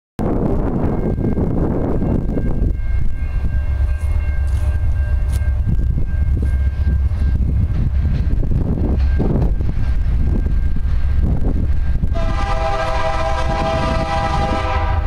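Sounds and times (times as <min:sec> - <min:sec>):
distant diesel freight train rumble: 0:00.2 - 0:15.0
faint steady high tones: 0:00.8 - 0:12.1.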